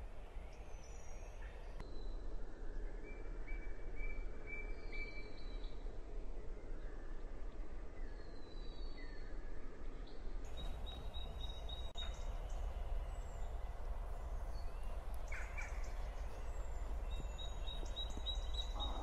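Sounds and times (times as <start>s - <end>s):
low background rumble: 2.2s - 19.0s
bird chirps and trills: 10.5s - 19.0s.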